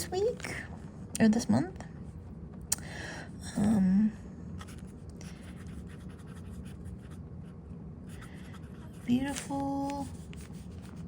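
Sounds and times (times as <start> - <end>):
fountain pen scratching on paper: 4.6 - 7.2, 8.1 - 11.0.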